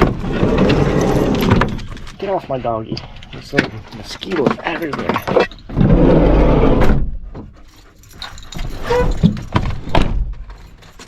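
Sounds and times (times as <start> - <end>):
dog panting and whimpering: 7.3 - 9.6.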